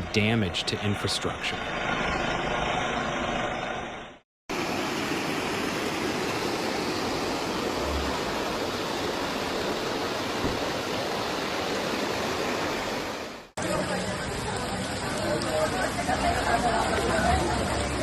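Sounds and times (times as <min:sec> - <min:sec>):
floodwater rushing: 0:04.5 - 0:18.0.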